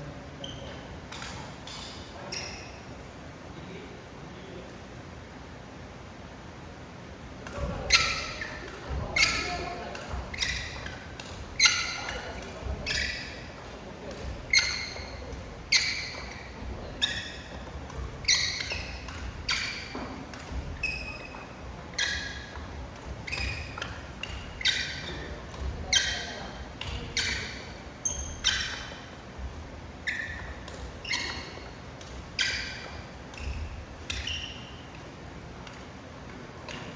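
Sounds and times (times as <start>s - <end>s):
rackets hitting shuttlecocks: 7.4s - 36.9s.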